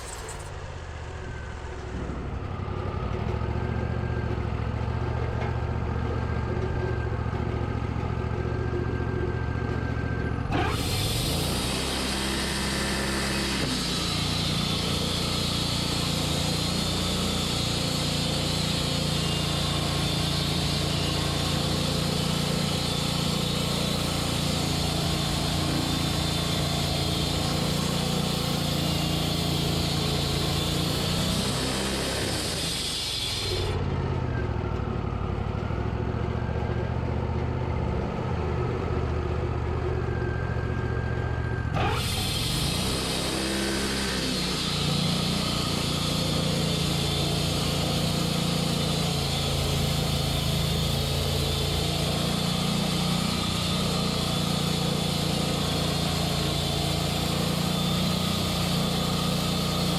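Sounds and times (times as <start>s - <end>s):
saw blade cutting wood: 0.0s - 0.7s, 10.5s - 33.8s, 41.7s - 59.9s
gas engine running: 0.0s - 59.9s.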